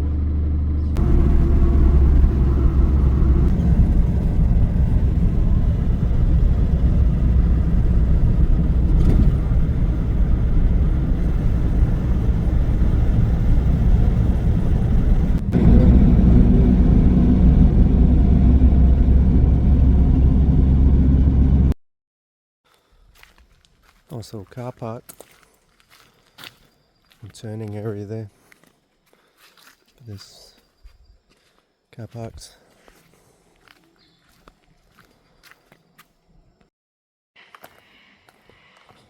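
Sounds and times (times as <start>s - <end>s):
car engine and road noise: 0.0s - 21.8s.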